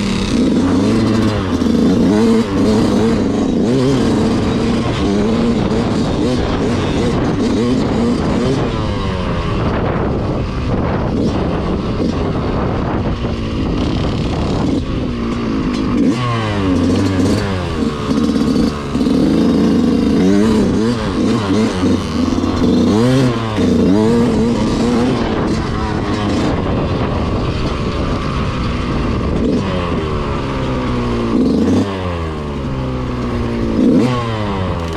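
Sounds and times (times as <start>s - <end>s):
motorcycle engines revving: 0.0s - 34.9s
steady low engine note: 16.6s - 31.4s.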